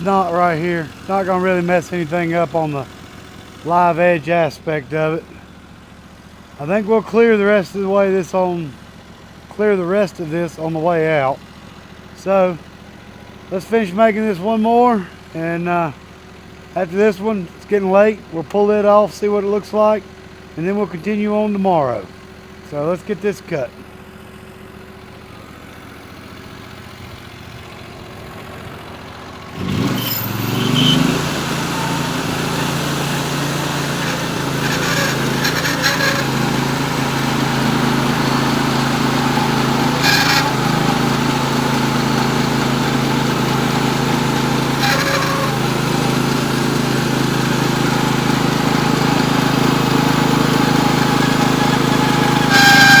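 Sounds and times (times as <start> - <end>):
sawmill engine revving: 0.0 - 53.0
band blade cutting log: 29.6 - 46.6, 49.3 - 53.0.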